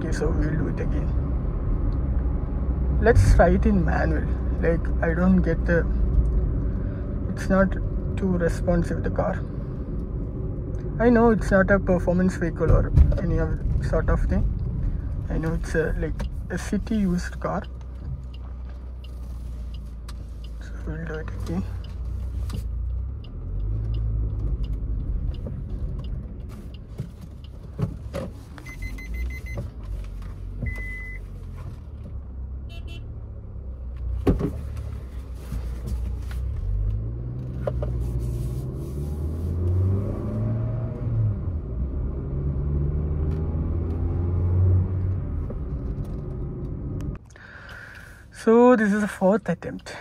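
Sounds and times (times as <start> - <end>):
car engine and road noise: 0.0 - 50.0
short electronic beeps: 28.6 - 29.6, 30.6 - 31.2.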